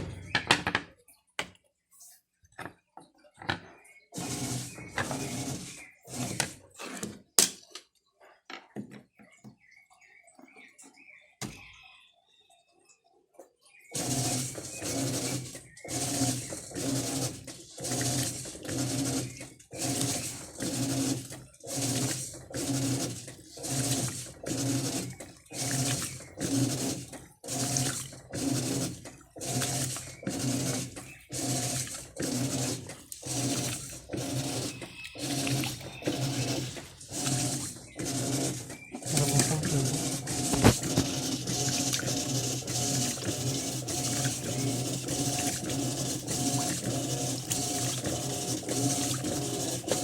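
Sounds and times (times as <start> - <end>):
washing machine motor hum: 4.2 - 6.7, 13.9 - 50.0.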